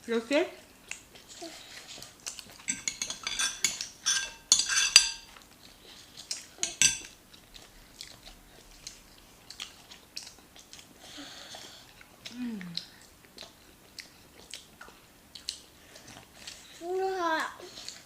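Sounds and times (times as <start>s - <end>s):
cutlery clinking on a plate: 2.6s - 5.4s, 6.6s - 7.2s.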